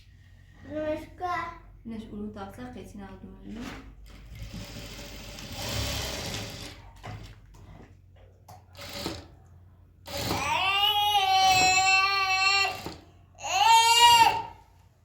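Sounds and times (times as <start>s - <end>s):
sewing machine stitching: 4.0s - 7.4s, 8.7s - 9.4s, 10.0s - 10.6s
baby crying: 10.4s - 14.6s.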